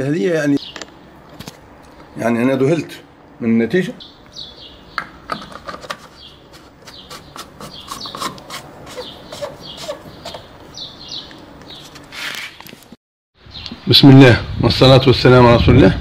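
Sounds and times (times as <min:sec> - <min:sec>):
small birds chirping: 0:00.5 - 0:02.5, 0:03.8 - 0:12.6, 0:13.4 - 0:13.9.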